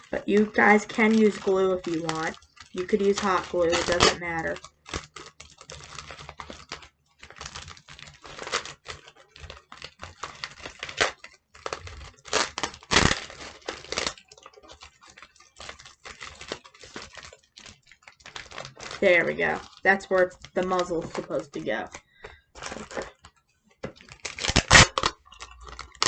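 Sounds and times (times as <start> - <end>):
paper crinkling: 0.0 - 26.0
sticky tape pulled and torn: 2.8 - 21.4, 23.9 - 26.0.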